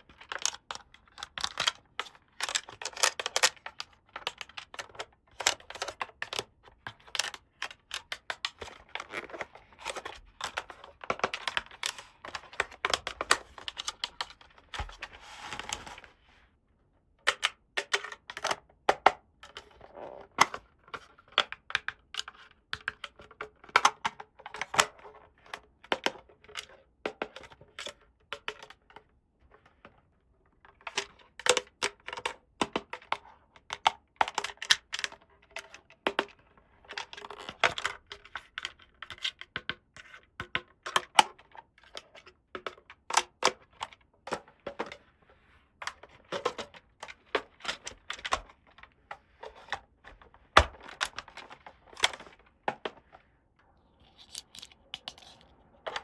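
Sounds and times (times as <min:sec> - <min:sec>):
plastic toy pieces clicking: 0:00.1 - 0:06.4.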